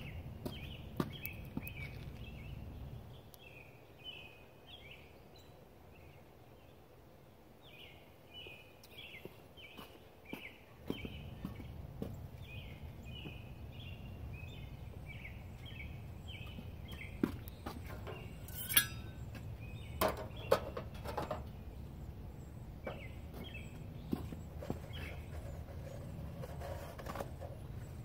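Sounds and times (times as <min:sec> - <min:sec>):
bird chirping: 0:00.0 - 0:06.9, 0:07.6 - 0:28.0
sharp knocks and clatter: 0:17.2 - 0:21.6.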